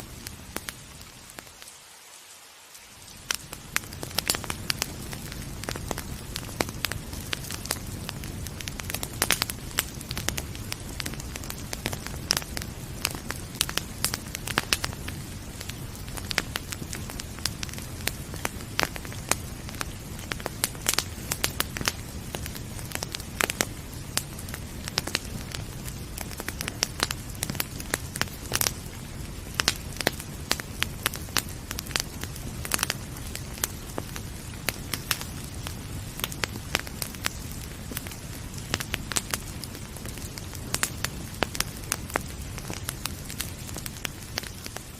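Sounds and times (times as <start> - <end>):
sharp pops of fire: 0.0 - 1.6, 3.0 - 44.9
wood fire crackling: 0.0 - 44.9.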